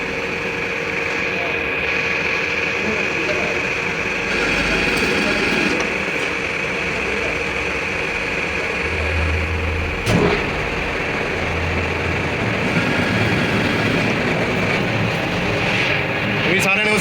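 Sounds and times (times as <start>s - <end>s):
mechanical running noise: 0.0s - 17.0s
low hum: 8.5s - 16.4s.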